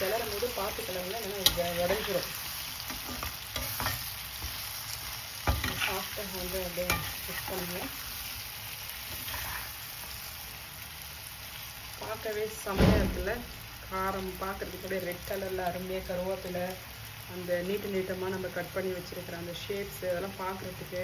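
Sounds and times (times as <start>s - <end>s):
vegetables sizzling in hot oil: 0.0s - 21.0s
spatula scraping pan: 1.2s - 4.8s, 5.4s - 8.0s, 9.0s - 9.8s.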